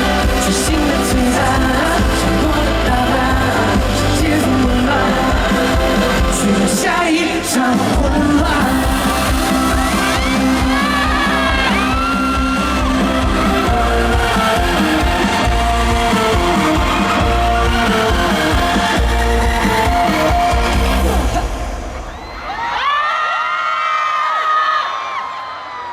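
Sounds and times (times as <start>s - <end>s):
person singing: 0.0s - 21.7s
live band playing: 7.6s - 22.0s.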